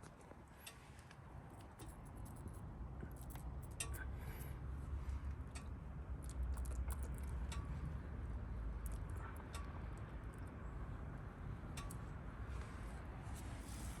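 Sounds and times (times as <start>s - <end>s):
small sharp clicks and clinks: 1.6s - 4.5s.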